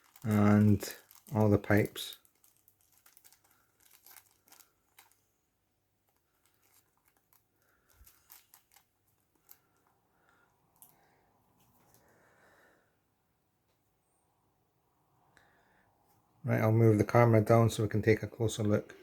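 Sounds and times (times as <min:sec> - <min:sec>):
packaging clicks and rustles: 0:00.0 - 0:05.4, 0:06.0 - 0:10.0.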